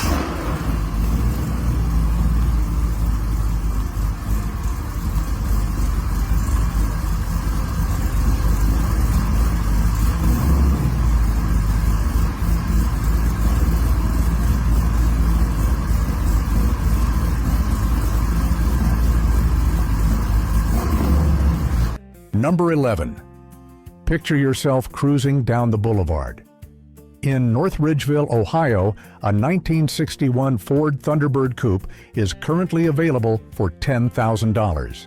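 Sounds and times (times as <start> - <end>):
car engine running loud: 0.0 - 22.0.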